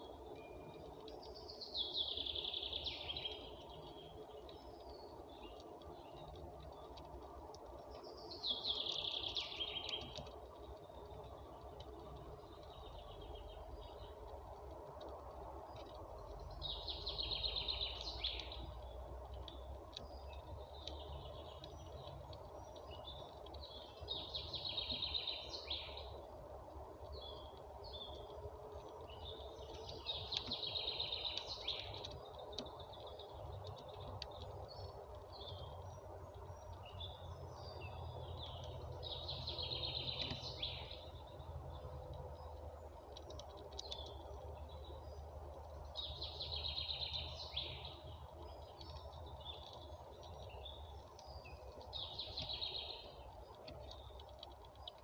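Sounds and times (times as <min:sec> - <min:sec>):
bird chirps: 0:00.0 - 0:07.0, 0:19.5 - 0:26.2, 0:29.0 - 0:42.6, 0:43.7 - 0:55.0
low background rumble: 0:00.0 - 0:55.0
songbird singing: 0:00.0 - 0:55.0.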